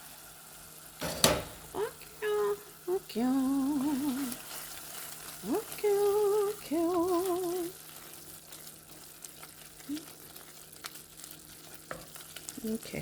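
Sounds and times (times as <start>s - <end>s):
stew sizzling in a pot: 0.0s - 13.0s
woman humming: 1.7s - 4.4s, 5.4s - 7.8s, 9.8s - 10.2s.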